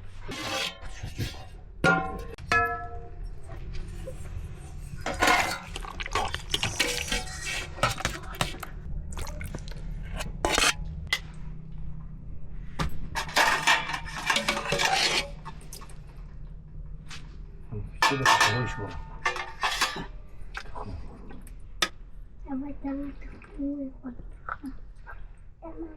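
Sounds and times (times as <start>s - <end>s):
dishes and pots clattering: 0.3s - 3.1s, 5.0s - 8.6s, 13.1s - 15.8s, 18.0s - 20.3s
steady low rumble: 1.0s - 25.9s.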